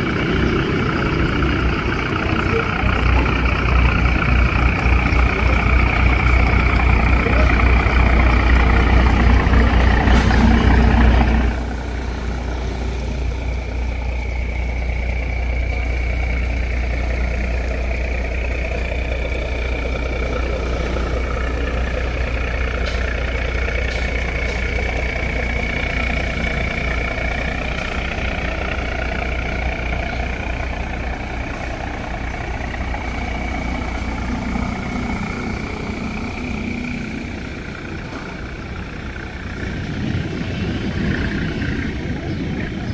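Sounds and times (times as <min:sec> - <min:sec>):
boat engine running: 0:00.0 - 0:42.9.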